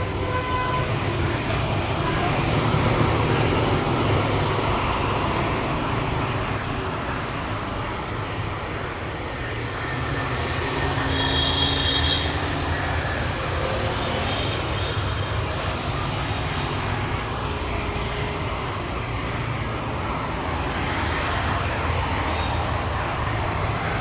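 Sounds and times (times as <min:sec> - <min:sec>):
passing vehicles rumbling: 0:00.0 - 0:24.0.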